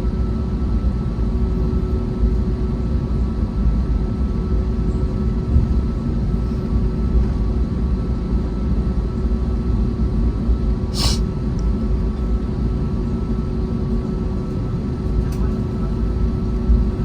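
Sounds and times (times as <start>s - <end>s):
aircraft cabin engine rumble: 0.0s - 17.0s
brief hiss: 11.0s - 11.2s.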